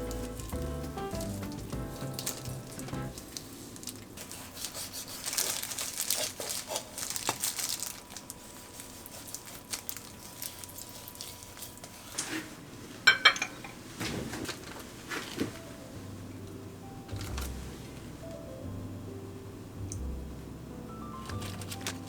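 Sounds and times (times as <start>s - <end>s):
material crinkling and rustling: 0.0s - 12.6s, 13.9s - 15.9s, 21.2s - 22.0s.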